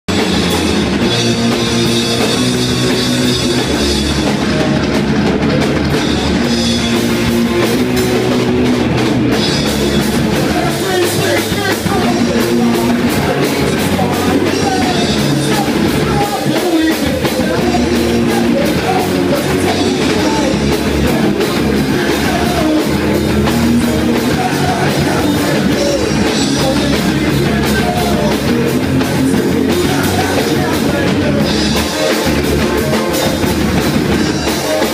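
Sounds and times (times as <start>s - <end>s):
rock music with drums and guitars: 0.1s - 34.9s
person singing: 9.8s - 34.9s.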